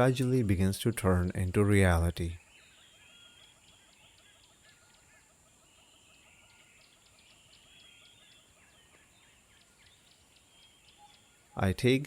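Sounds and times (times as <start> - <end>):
birds chirping and calling: 0.0 - 12.0.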